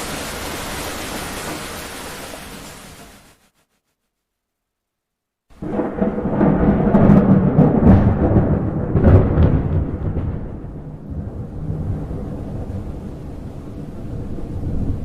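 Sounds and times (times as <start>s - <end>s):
thunder rumbling and cracking: 5.5s - 15.0s.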